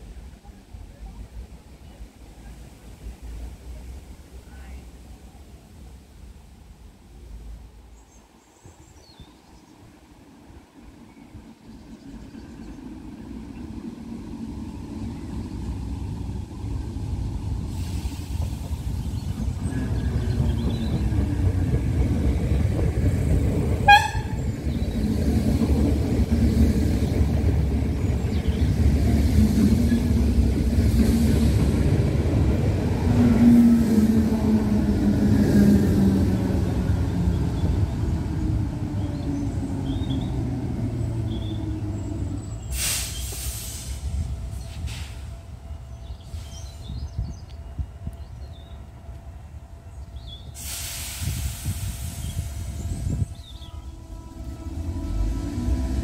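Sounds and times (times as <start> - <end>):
low train whine: 0.0 - 56.0
train wheels rumbling on rails: 11.0 - 56.0
short horn toot: 23.9 - 24.4.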